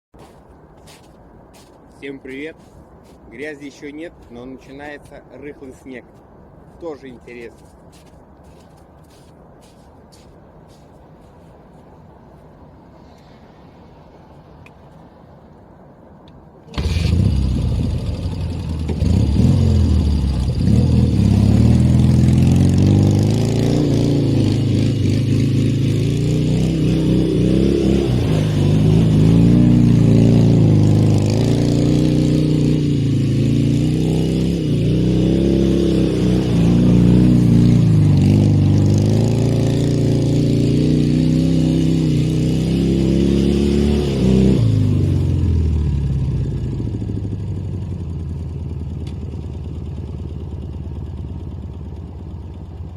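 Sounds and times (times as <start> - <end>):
motorcycle engine revving: 16.7 - 52.0.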